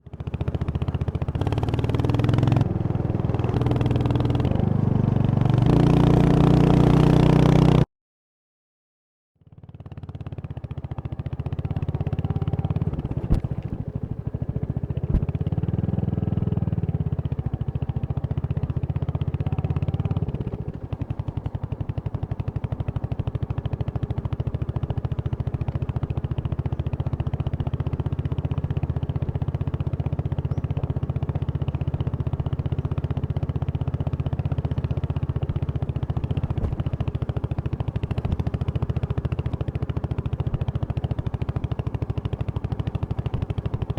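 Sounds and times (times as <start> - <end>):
motorcycle engine running: 0.0 - 7.9, 9.4 - 43.9.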